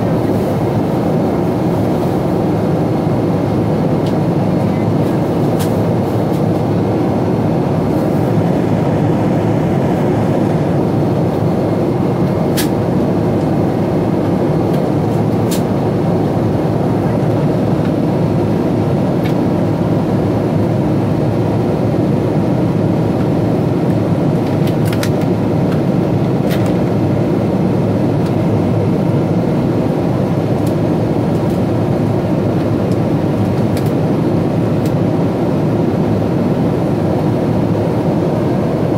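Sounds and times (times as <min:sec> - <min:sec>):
airplane cabin roar: 0:00.0 - 0:38.9.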